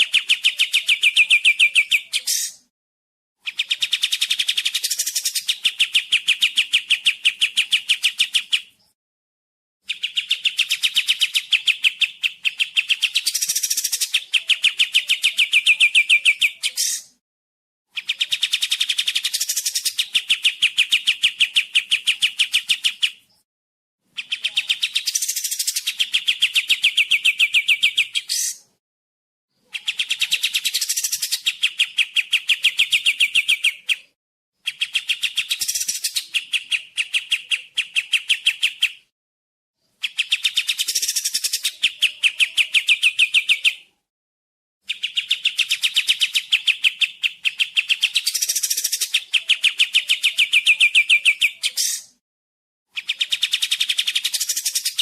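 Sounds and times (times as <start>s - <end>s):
bird trilling rapidly: 0.0s - 2.7s, 9.9s - 17.2s, 18.0s - 23.2s, 24.2s - 28.7s, 29.6s - 39.0s, 40.0s - 43.9s, 44.8s - 52.2s, 52.9s - 55.0s.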